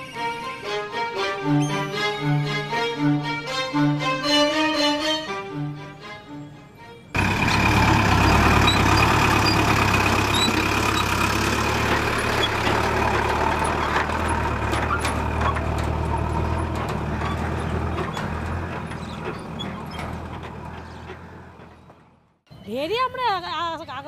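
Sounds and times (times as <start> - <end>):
truck engine running: 7.2 - 22.4.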